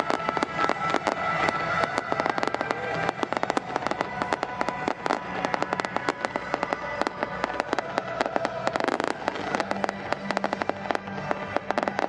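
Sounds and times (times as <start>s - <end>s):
fireworks bangs and crackles: 0.0s - 12.0s
music playing: 0.0s - 12.0s.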